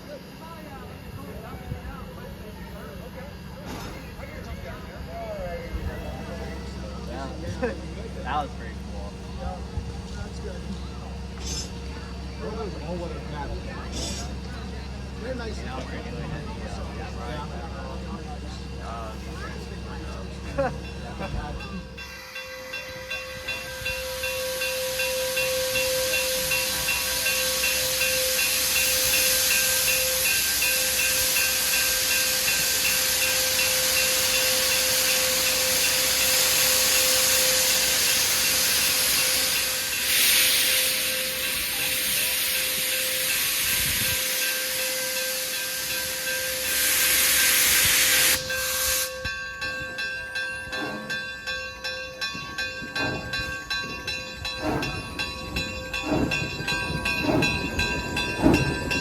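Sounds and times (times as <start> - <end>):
steam locomotive hissing: 0.0 - 59.0
train wheels clicking over rail joints: 9.7 - 15.9, 22.8 - 59.0
loud blasts of steam: 22.1 - 49.3.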